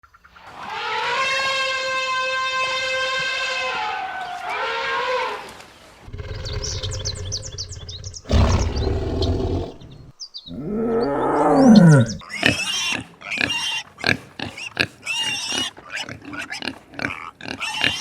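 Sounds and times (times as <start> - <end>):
animal roar: 6.1 - 12.2
high bird chirps: 6.2 - 12.2
animal call bending in pitch: 10.5 - 12.2.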